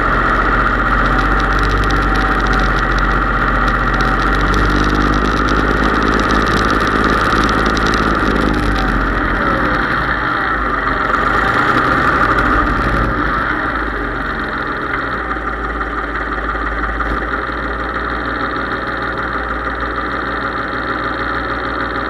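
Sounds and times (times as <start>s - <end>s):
high whine: 0.0s - 17.6s
tractor engine running: 0.0s - 22.0s.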